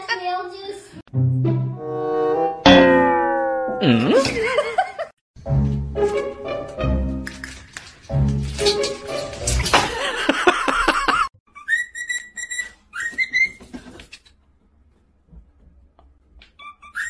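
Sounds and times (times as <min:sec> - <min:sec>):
pet bird whistling: 0:11.6 - 0:13.6, 0:16.6 - 0:17.0.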